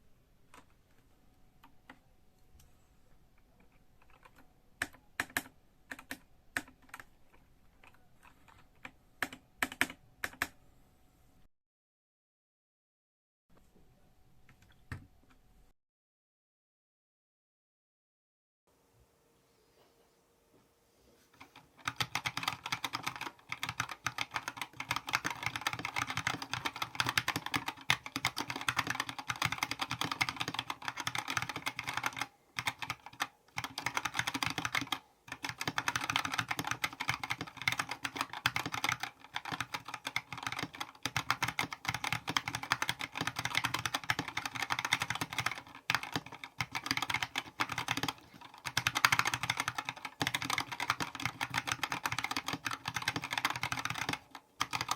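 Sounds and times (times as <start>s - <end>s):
mechanical keyboard typing: 3.7s - 7.1s, 7.8s - 10.6s, 21.4s - 54.9s.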